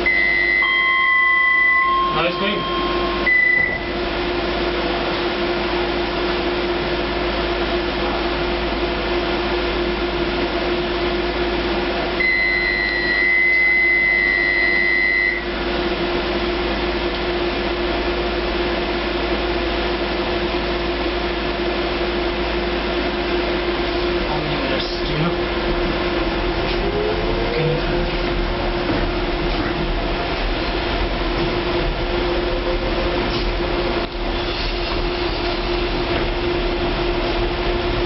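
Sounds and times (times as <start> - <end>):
high continuous beep: 0.0 - 4.0, 12.2 - 15.5
train humming: 0.0 - 38.0.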